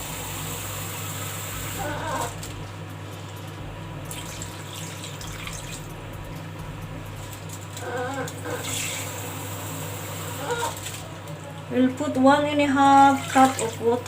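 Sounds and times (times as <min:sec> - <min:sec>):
water pouring: 0:04.0 - 0:06.5, 0:12.9 - 0:14.0.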